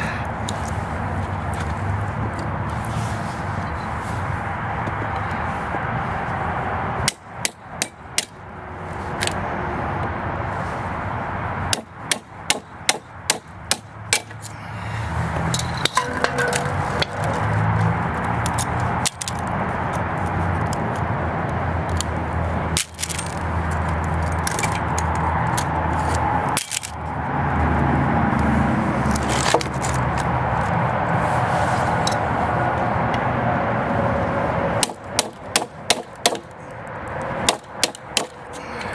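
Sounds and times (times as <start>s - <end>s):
steady background noise: 0.0s - 38.9s
hammer striking steel: 15.6s - 17.6s.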